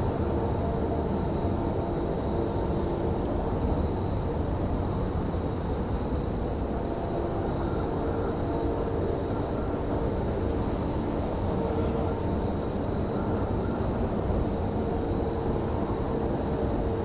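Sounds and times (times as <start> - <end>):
high-pitched whine: 0.0 - 17.0.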